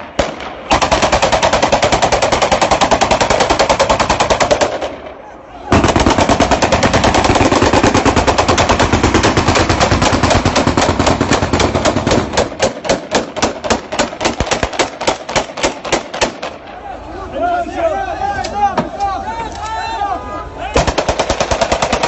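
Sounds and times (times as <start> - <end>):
automatic rifle fire: 0.0 - 5.0, 5.7 - 16.6, 20.8 - 22.0.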